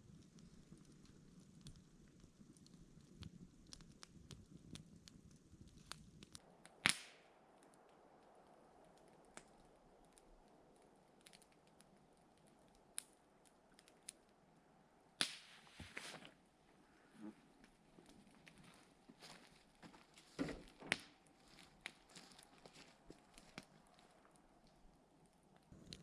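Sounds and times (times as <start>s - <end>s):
low steady hiss: 0.0s - 26.0s
sharp snaps: 3.7s - 14.3s, 15.2s - 15.7s.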